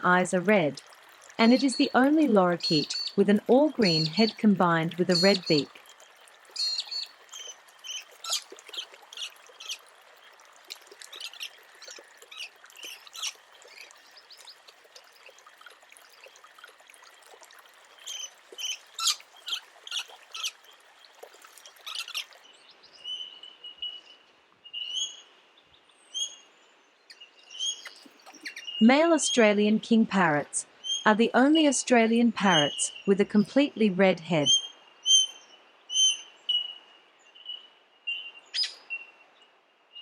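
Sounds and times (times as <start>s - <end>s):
lorikeets screeching: 2.6s - 3.2s, 5.1s - 5.7s
high upward-flicking bird calls: 6.5s - 9.8s, 27.6s - 28.8s, 38.6s - 38.8s.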